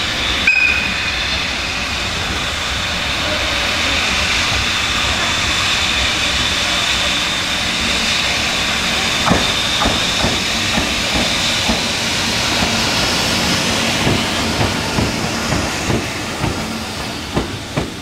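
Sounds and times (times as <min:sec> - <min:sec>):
electric locomotive whine: 0:00.0 - 0:18.0
wheels clacking over rail joints: 0:09.2 - 0:18.0.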